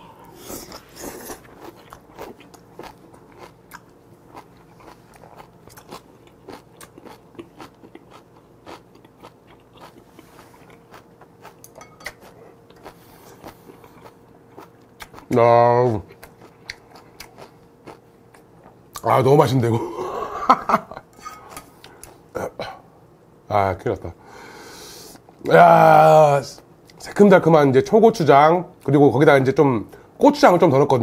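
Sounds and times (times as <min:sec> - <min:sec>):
chewing crunchy food: 0:00.4 - 0:19.1.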